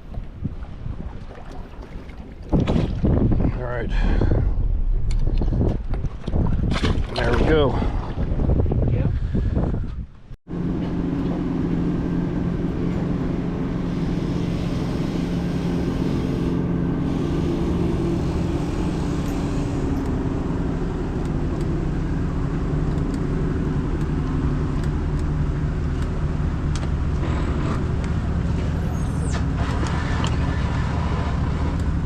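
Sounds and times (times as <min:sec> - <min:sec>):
engine running steadily: 0:10.5 - 0:32.0.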